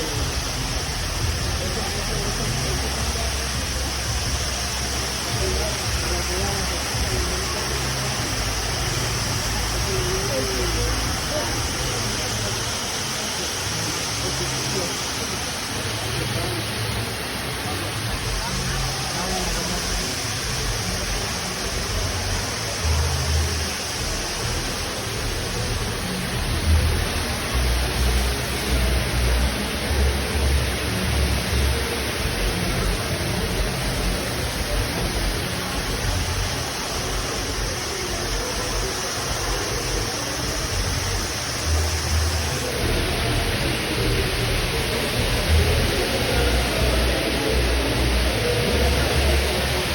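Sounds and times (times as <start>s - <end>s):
waterfall rushing: 0.0s - 49.9s
low rumbling: 41.0s - 49.9s.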